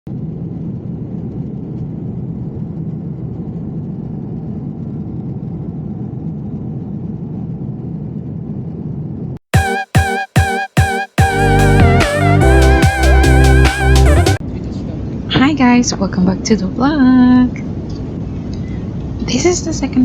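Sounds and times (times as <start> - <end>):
airliner cabin drone: 0.1 - 9.3.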